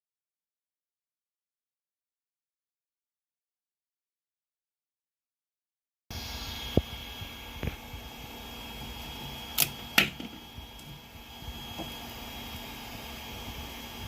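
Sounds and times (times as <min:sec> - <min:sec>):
printer fan hum with whine: 0:06.1 - 0:14.0.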